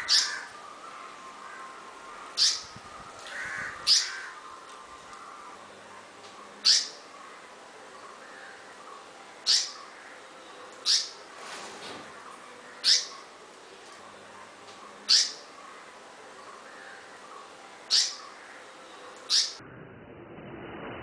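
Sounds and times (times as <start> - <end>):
bird giving harsh calls: 0.0 - 0.6, 1.4 - 4.5, 9.4 - 10.2, 10.8 - 11.2, 12.7 - 13.3, 15.1 - 15.8, 17.9 - 18.6, 19.3 - 19.6.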